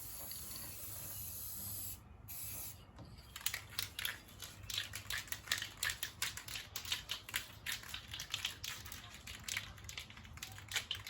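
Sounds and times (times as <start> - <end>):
sharp clicks and crackles: 3.4 - 11.0.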